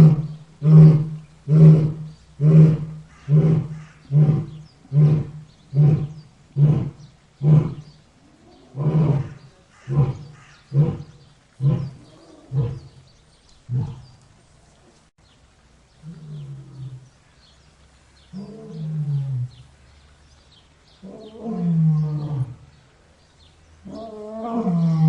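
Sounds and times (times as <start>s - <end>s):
lion roaring: 0.0s - 13.0s, 13.7s - 14.2s, 18.3s - 19.6s, 21.0s - 22.7s, 23.8s - 25.0s.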